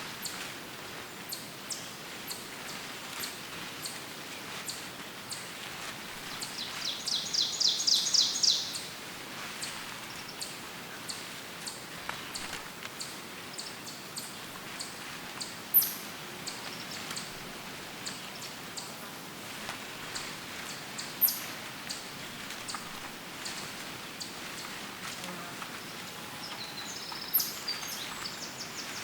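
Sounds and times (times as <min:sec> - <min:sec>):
background hiss: 0:00.0 - 0:29.0
bird singing fast trill: 0:06.8 - 0:08.8.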